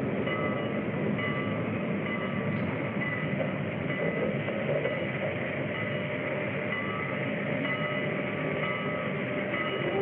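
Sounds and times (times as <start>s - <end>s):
passenger train rumbling: 0.0s - 10.0s.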